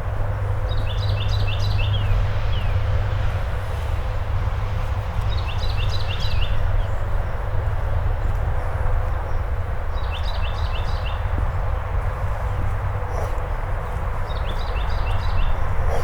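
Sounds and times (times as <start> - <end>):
songbird singing: 0.7 - 2.8, 9.3 - 11.8, 12.4 - 16.0.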